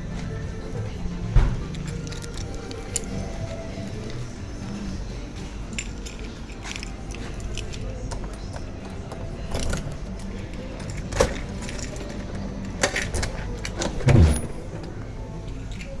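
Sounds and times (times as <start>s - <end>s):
keys jangling: 1.6s - 15.0s
heavy low thump: 14.0s - 14.8s.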